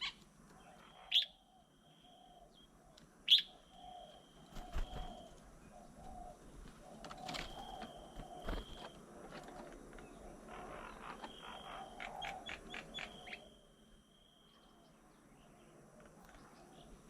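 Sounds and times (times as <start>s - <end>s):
sharp bird chirps: 0.0s - 5.4s, 10.7s - 14.8s
low dove-like coos: 0.0s - 13.6s.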